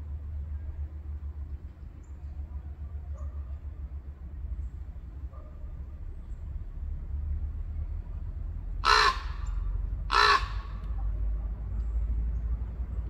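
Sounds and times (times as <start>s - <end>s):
steady low rumble: 0.0s - 13.0s
bird harsh calls: 8.8s - 10.8s.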